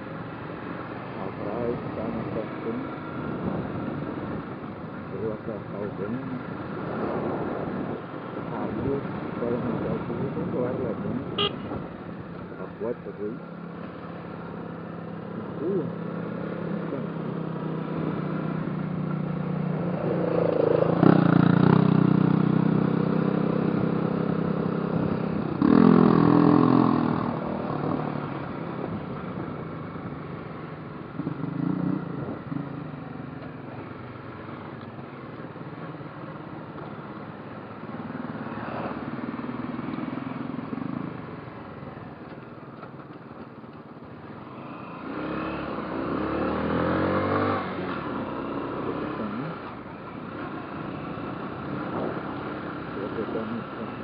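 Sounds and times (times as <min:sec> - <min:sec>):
motorcycle engine revving: 0:12.8 - 0:42.3, 0:44.3 - 0:54.0.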